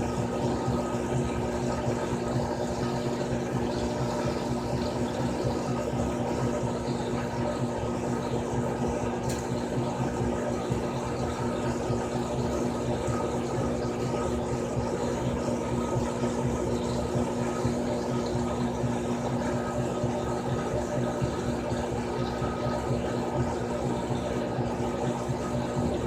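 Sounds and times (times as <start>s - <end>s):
washing machine motor hum: 0.0s - 26.0s.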